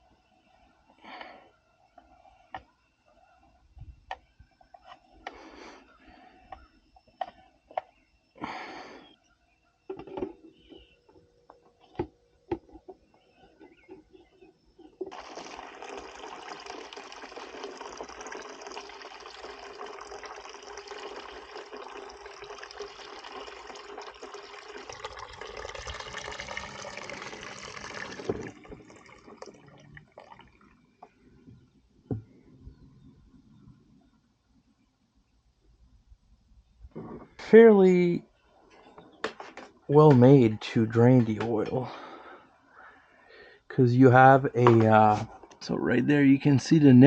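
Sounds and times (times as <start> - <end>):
liquid pouring: 15.1 - 30.8.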